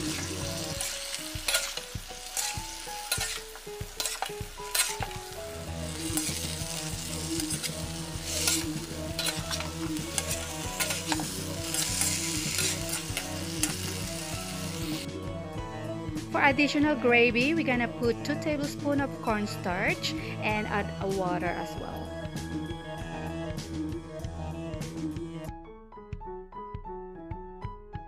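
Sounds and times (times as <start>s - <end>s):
food sizzling in a frying pan: 0.0s - 15.1s
utensil scraping and knocking pan: 0.8s - 5.2s.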